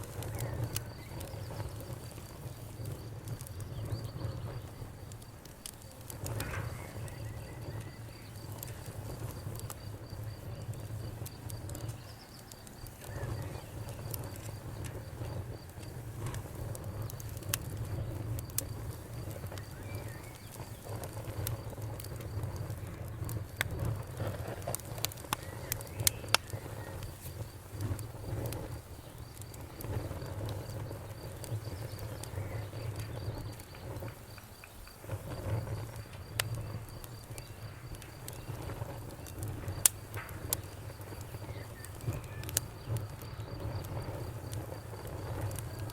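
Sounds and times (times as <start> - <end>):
faint high rhythmic chirping: 0.0 - 15.4
low rumble of flames: 0.0 - 45.9
wood fire crackling and popping: 0.0 - 45.9.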